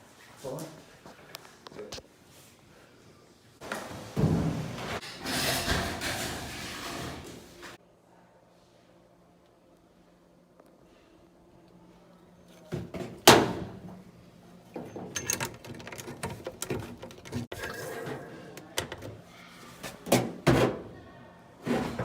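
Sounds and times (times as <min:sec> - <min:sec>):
rattling and handling noise: 0:14.7 - 0:17.8.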